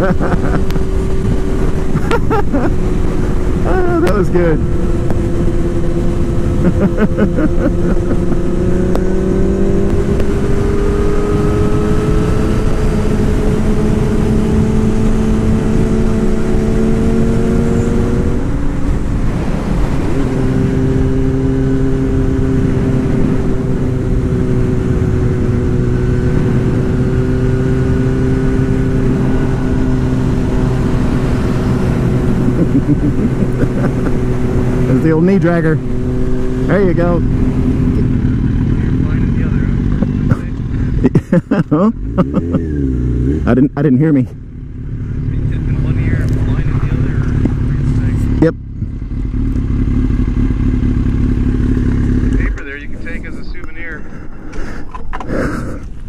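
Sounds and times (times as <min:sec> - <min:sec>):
motorcycle engine: 0:00.0 - 0:56.0
wind rush: 0:07.7 - 0:24.2, 0:25.0 - 0:35.0.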